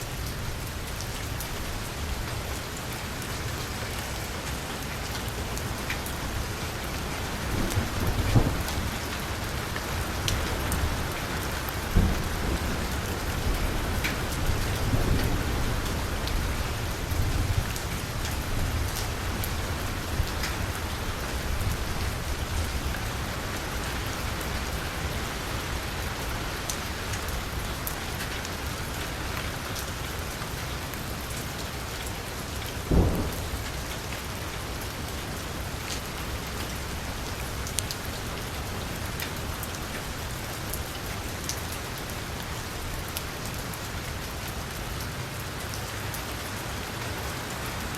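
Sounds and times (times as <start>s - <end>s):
heavy rain on vehicle roof: 0.0s - 47.9s
loud thud: 32.9s - 33.6s.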